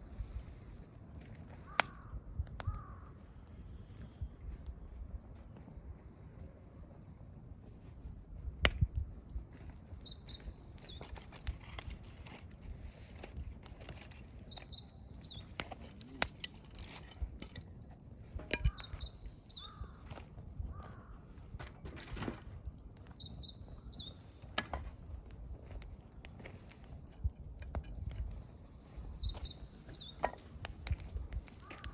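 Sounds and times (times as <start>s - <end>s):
campfire crackling: 0.0s - 31.9s
small bird chirping: 9.8s - 11.2s, 14.1s - 16.6s, 18.6s - 20.0s, 23.0s - 24.5s, 28.0s - 30.5s.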